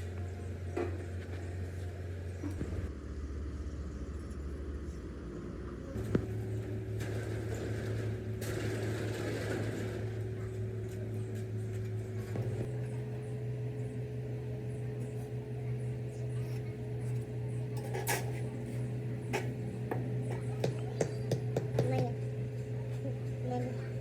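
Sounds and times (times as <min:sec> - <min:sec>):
machine motor humming: 0:06.0 - 0:24.0.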